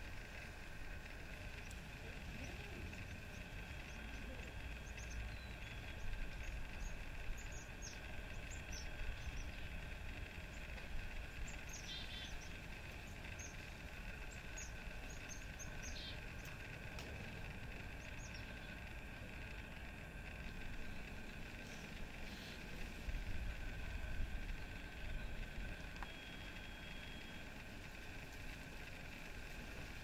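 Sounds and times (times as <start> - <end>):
background hum: 0.0 - 30.0
small birds chirping: 0.0 - 30.0.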